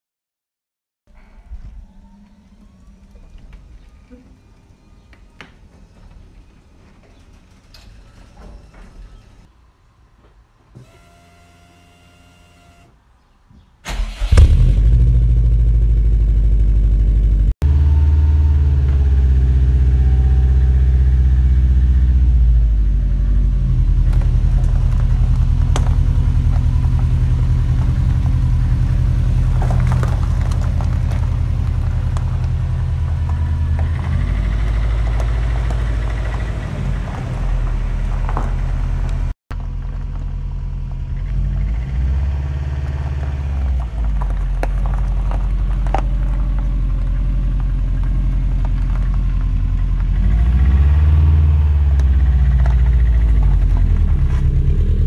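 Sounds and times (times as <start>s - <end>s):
car engine starting and idling: 13.9s - 55.0s.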